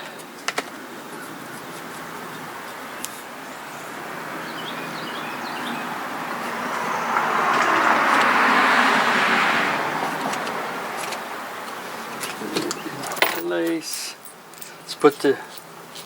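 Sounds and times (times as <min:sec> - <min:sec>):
vehicle passing by: 0:03.8 - 0:12.7.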